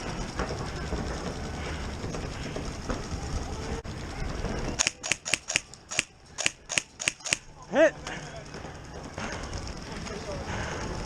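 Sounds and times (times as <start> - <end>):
low rumble: 0.0 - 4.9
airsoft gun shots: 4.8 - 7.4.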